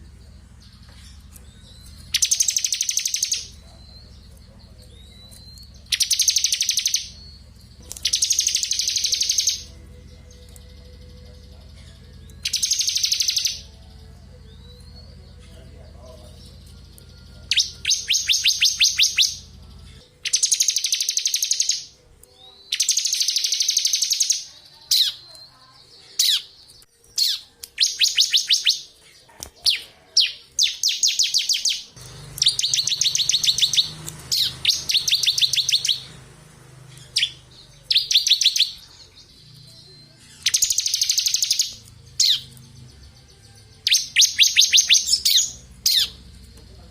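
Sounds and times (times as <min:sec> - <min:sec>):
bird singing high rapid trill: 0:00.0 - 0:46.9.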